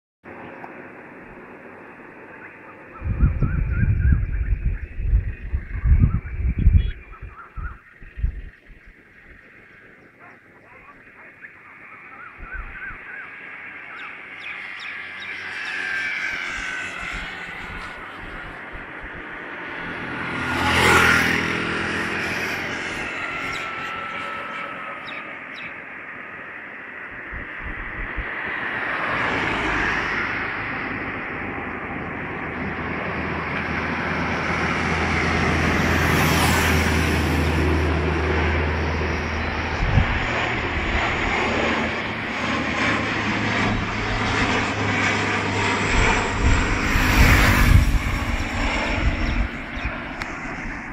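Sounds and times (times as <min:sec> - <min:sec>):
airliner engines roaring: 0:00.2 - 0:50.9
low thumps: 0:27.2 - 0:28.3.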